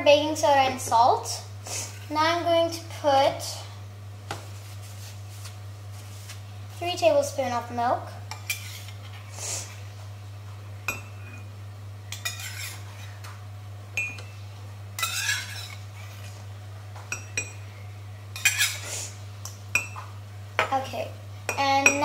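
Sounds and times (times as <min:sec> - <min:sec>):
steady low hum: 0:00.0 - 0:22.0
spoon scraping: 0:08.3 - 0:09.0, 0:12.1 - 0:13.2, 0:15.0 - 0:16.4, 0:18.4 - 0:18.9.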